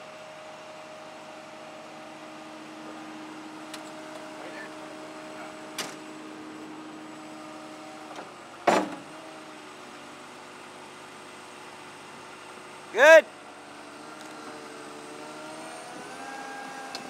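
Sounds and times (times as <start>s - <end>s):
skid-steer loader humming: 0.0s - 17.0s
loud short clunk: 8.2s - 9.1s.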